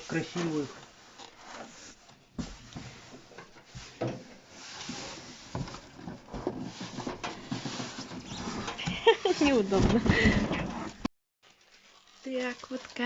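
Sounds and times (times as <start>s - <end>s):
packaging rustling: 11.4s - 13.0s.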